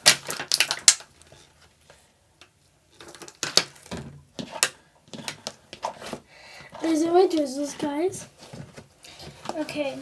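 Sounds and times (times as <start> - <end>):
slime clicks and crackles: 0.0 - 1.1.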